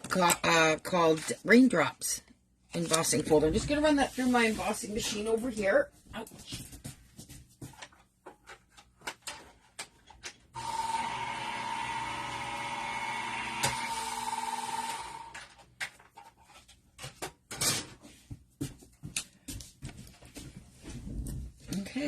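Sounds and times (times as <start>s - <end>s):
embossing machine whirring: 10.6s - 15.4s.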